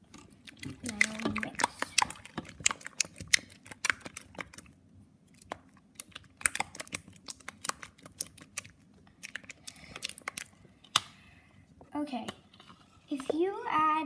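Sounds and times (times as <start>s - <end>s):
spatula stirring slime in bowl: 0.0s - 11.1s, 11.8s - 14.0s.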